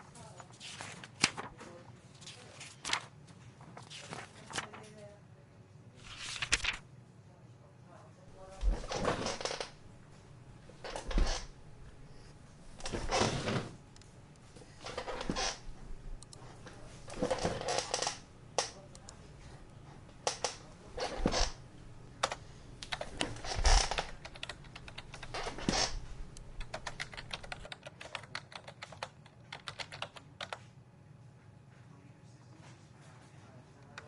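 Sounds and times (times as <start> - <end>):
thuds and rustles: 8.5 - 9.5
keyboard typing: 22.2 - 30.6.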